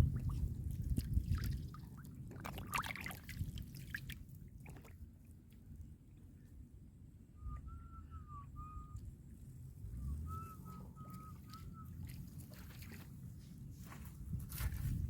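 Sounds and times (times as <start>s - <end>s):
short clear whistled notes: 9.9s - 12.4s.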